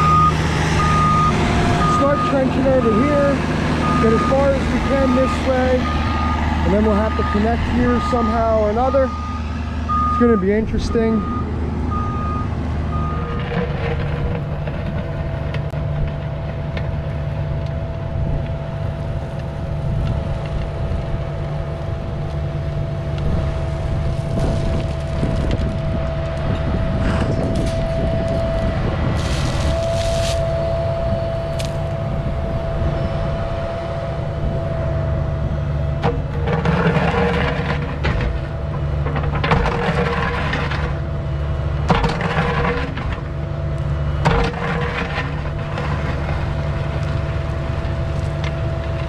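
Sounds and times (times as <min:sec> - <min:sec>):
excavator engine with whine: 0:00.0 - 0:49.0
knocks and scrapes: 0:13.2 - 0:16.2, 0:29.2 - 0:30.5, 0:36.0 - 0:41.0, 0:41.8 - 0:43.4, 0:44.2 - 0:46.7.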